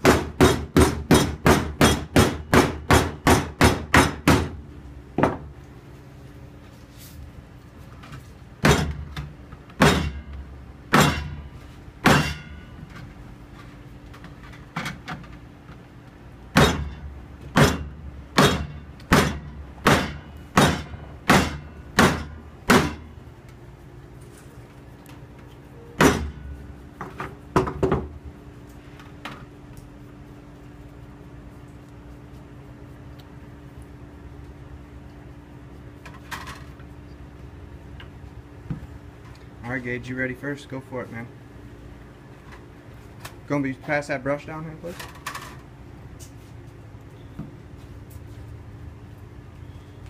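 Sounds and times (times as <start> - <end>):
hammer striking copper sheet: 0.0 - 4.6, 9.8 - 10.3, 10.9 - 12.6, 16.5 - 23.1, 26.0 - 26.6.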